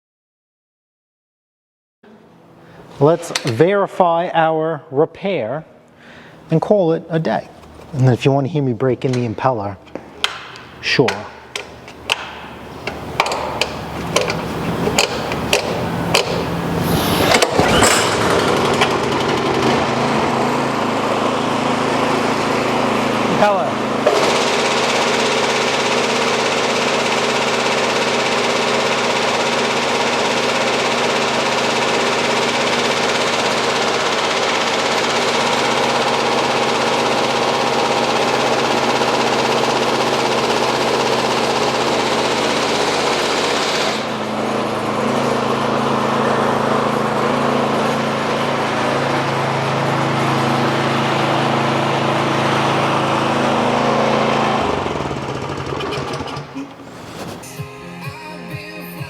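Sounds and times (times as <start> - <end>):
snowblower mechanical whir: 11.1 - 57.6
engine running: 11.5 - 57.6.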